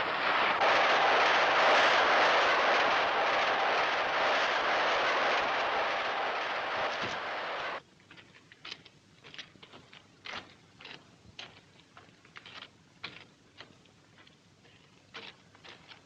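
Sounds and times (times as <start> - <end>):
steam train running: 0.0 - 7.8
faint clicks and knocks: 7.9 - 16.0.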